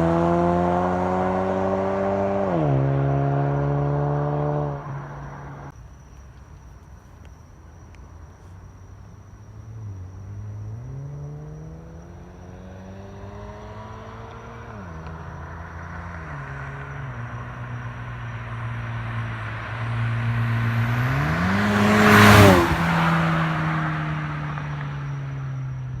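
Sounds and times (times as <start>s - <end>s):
car engine accelerating and shifting: 0.0s - 5.7s, 9.8s - 26.0s
car passing by: 9.8s - 26.0s.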